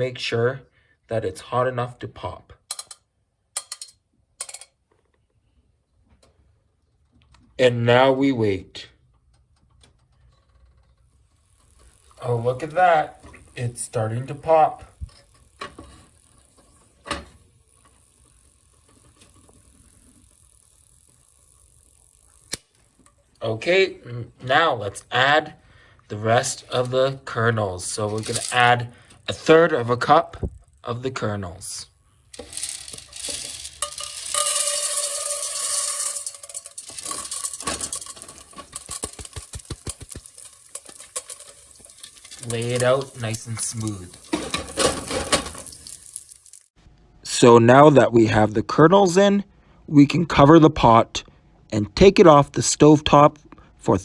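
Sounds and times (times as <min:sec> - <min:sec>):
hot oil hissing: 0:32.3 - 0:46.8
popcorn kernel popping: 0:32.4 - 0:43.1.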